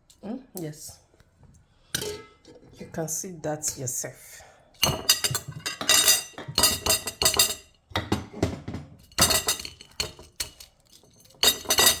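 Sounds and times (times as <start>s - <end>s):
eggshells crackling and clinking: 9.1s - 12.0s.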